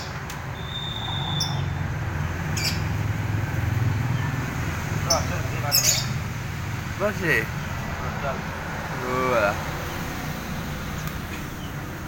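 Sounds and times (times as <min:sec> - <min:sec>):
high bird chirps: 0:00.0 - 0:03.0, 0:05.0 - 0:06.3
thin steady whistle: 0:00.5 - 0:01.6.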